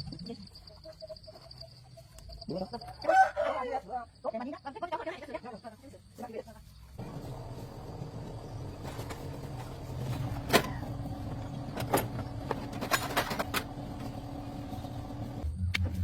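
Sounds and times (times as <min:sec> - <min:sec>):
machine hum: 0:07.0 - 0:15.5.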